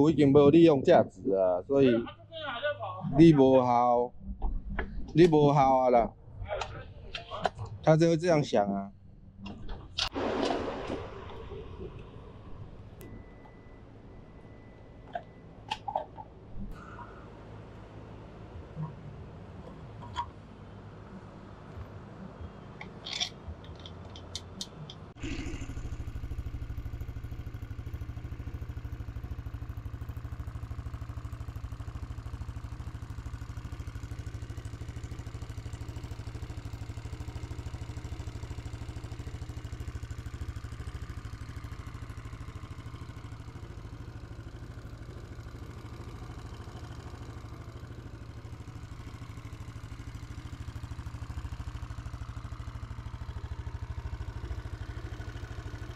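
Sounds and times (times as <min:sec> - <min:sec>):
scooter engine starting and idling: 0:09.4 - 0:19.2, 0:22.8 - 0:55.9.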